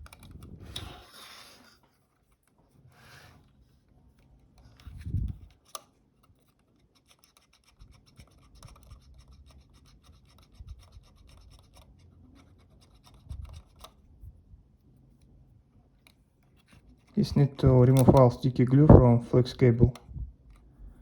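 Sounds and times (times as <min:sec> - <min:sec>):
faint scratching and rubbing: 0:00.0 - 0:15.2.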